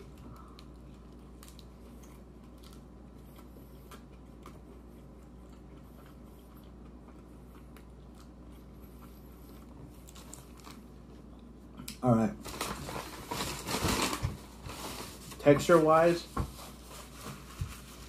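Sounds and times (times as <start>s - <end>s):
chewing food: 0.0s - 12.0s.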